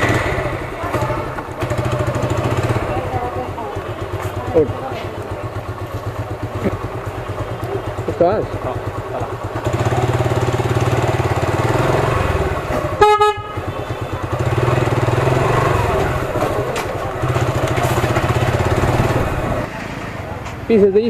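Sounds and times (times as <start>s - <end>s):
motorcycle engine rumbling: 0.0s - 21.0s
motorcycle horn toot: 12.8s - 14.9s.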